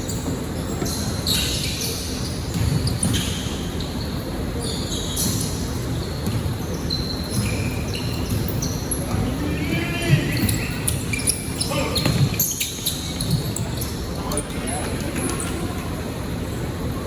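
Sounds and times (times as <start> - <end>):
sneakers squeaking on floor: 0.0 - 16.8
low murmur of hall noise: 0.0 - 17.0
basketball bouncing: 2.5 - 3.4, 6.2 - 6.6, 7.2 - 11.3, 11.9 - 12.6.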